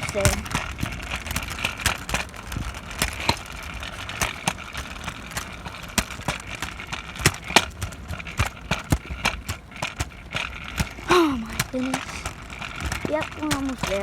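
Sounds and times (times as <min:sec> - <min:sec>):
scooter wheels rumbling on pavement: 0:00.0 - 0:14.0
sharp clicks and knocks: 0:00.0 - 0:14.0.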